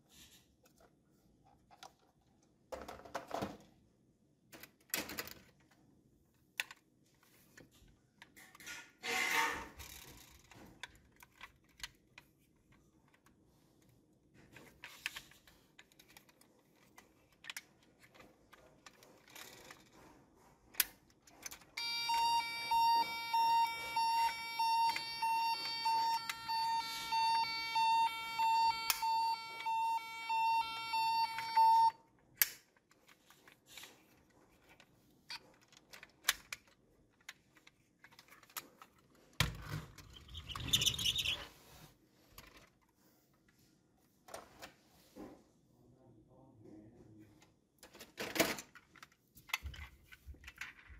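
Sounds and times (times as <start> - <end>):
toy electronic siren beeping: 21.8 - 32.0.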